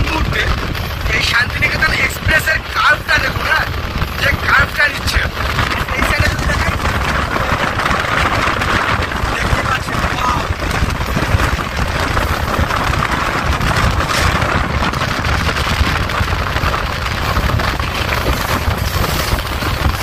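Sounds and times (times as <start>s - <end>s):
train wheels rumbling: 0.0s - 8.1s
wind buffeting microphone: 0.0s - 20.0s.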